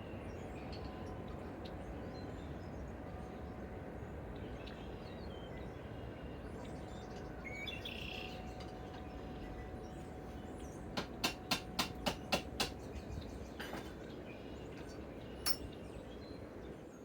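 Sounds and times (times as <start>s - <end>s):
hammer tapping on metal: 11.0s - 12.8s.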